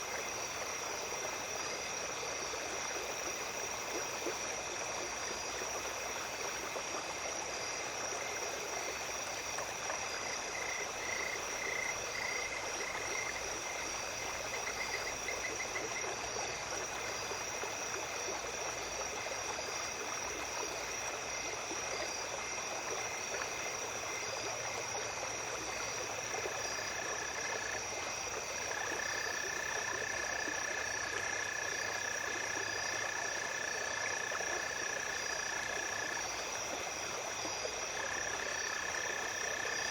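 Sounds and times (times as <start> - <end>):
insects trilling: 0.0 - 39.9
long steady insect trill: 0.0 - 39.9
small stream running: 0.0 - 39.9
insect pulsing chirp: 7.7 - 19.0.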